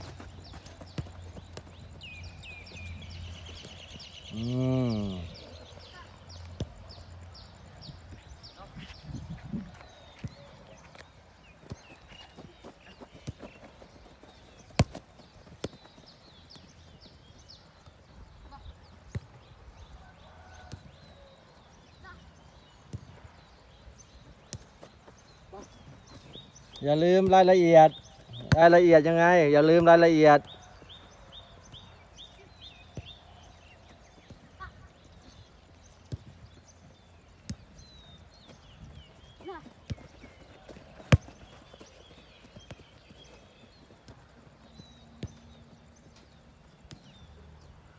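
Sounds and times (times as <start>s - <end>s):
football being kicked: 0.0s - 2.0s, 11.6s - 16.6s, 28.0s - 28.9s, 37.4s - 44.2s
bird chirping: 0.0s - 47.8s.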